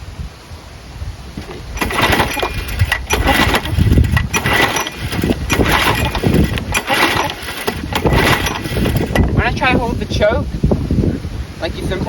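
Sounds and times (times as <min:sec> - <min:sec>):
mower engine pull-starting: 0:01.4 - 0:10.1.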